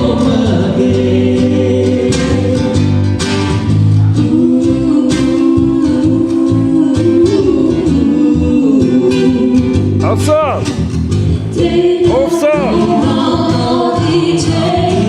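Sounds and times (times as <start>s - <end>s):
guitar accompaniment: 0.0s - 15.0s
person singing: 4.3s - 10.7s, 11.6s - 15.0s.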